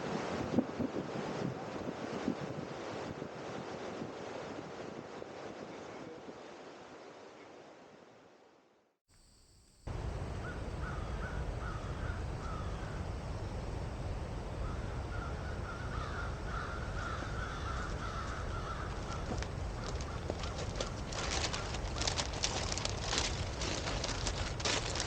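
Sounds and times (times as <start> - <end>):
low outdoor rumble: 9.9 - 25.0
harsh animal calls: 10.2 - 13.3, 14.6 - 25.0.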